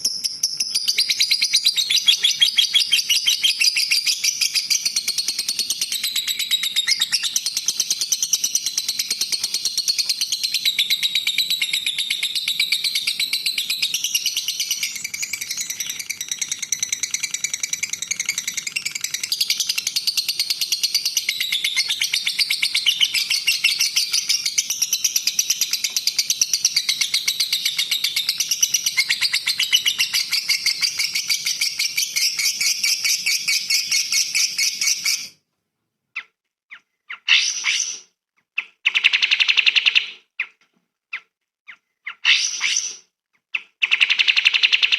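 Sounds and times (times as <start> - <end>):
songbird rapid chattering song: 0.0 - 35.3.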